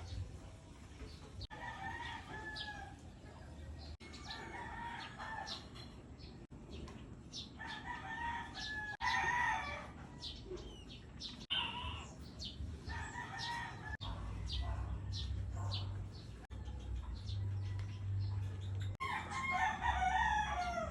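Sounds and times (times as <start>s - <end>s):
sparrows chirping: 2.2s - 20.9s
chickens clucking: 9.6s - 19.7s.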